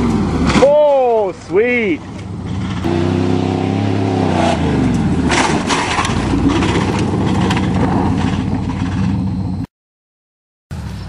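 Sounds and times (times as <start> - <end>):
truck engine revving: 0.0 - 9.7
truck knocks and rattles: 4.6 - 9.6.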